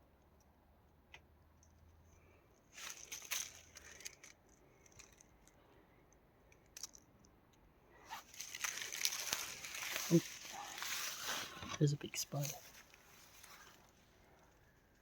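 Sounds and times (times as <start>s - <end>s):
crackling rustles: 2.1s - 5.8s, 8.0s - 15.0s.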